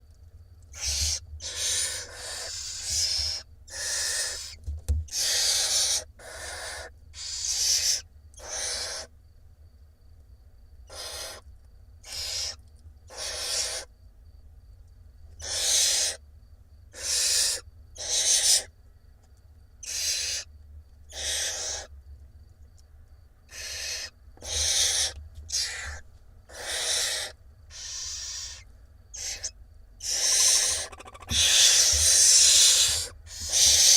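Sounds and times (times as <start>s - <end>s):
owl nestlings hissing calls: 0.7s - 9.1s, 10.9s - 11.4s, 12.0s - 13.9s, 15.4s - 16.2s, 16.9s - 18.7s, 19.8s - 20.5s, 21.1s - 21.9s, 23.5s - 33.9s.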